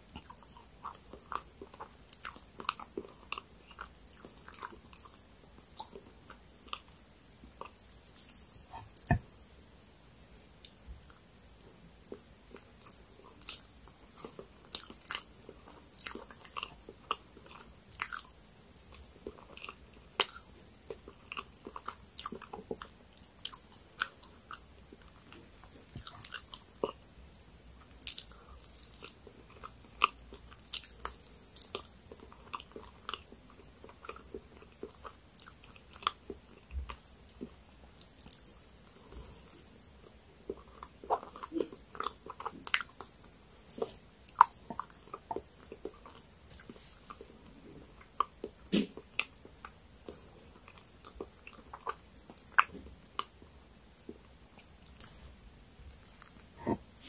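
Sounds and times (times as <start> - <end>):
chewing: 0.0 - 9.9, 11.9 - 55.3, 55.9 - 57.0
lip smacks: 7.6 - 9.9, 48.2 - 49.4
sticky mouth clicks: 8.7 - 9.3, 48.2 - 49.4, 56.2 - 56.9.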